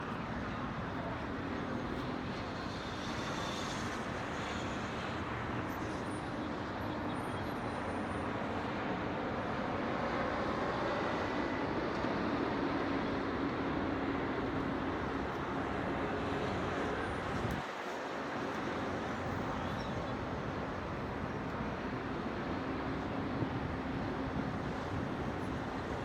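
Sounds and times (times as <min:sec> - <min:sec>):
distant road traffic: 0:10.3 - 0:26.0.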